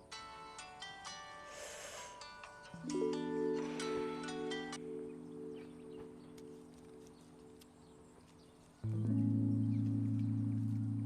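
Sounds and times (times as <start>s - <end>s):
sustained low chord: 8.8s - 11.0s.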